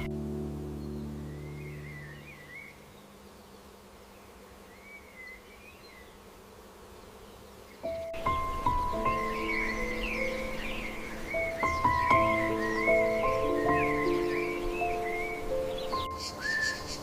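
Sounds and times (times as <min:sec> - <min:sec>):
background music: 0:00.0 - 0:02.6, 0:07.9 - 0:17.0
insect buzzing: 0:00.0 - 0:17.0
soft bird chirps: 0:00.8 - 0:06.2, 0:07.2 - 0:17.0.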